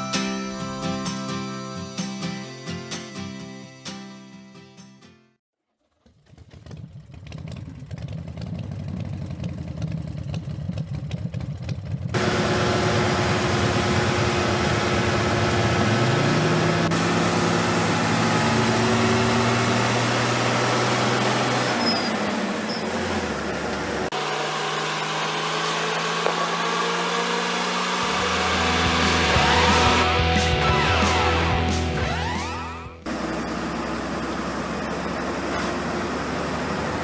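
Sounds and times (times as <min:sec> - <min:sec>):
diesel truck engine running: 0:12.2 - 0:37.0.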